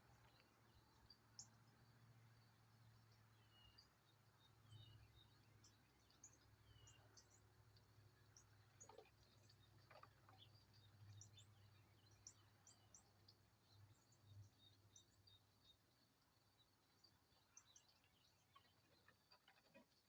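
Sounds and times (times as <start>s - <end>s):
songbirds chirping and whistling: 3.2s - 7.5s.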